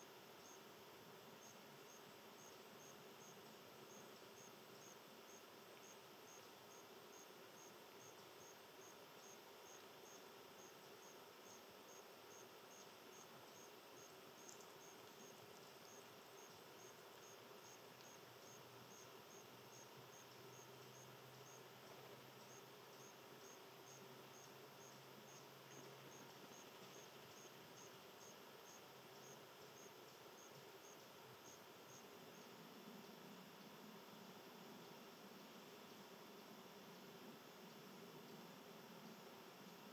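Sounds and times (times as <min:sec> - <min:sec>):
insect chirping: 0:00.0 - 0:39.9
soft background hiss: 0:00.0 - 0:39.9.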